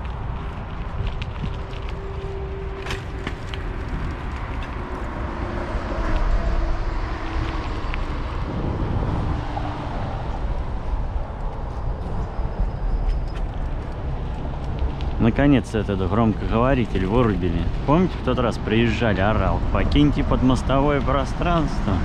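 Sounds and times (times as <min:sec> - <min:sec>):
bicycle clicks and rattles: 0:00.0 - 0:06.4
tyres on rough track: 0:00.0 - 0:22.0
wind rumbling on microphone: 0:00.0 - 0:22.0.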